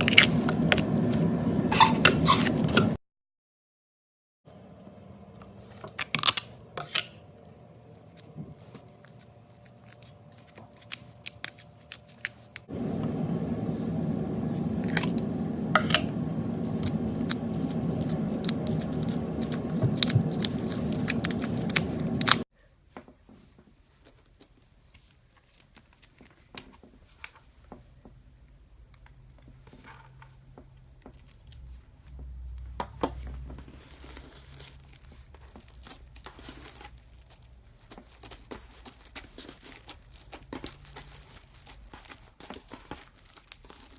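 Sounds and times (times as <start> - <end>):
slime clicking and crackling: 33.7 - 43.9.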